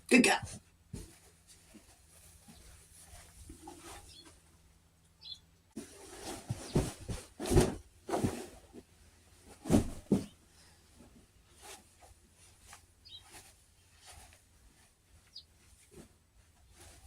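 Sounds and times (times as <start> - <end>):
objects knocking and rustling: 5.8 - 10.4.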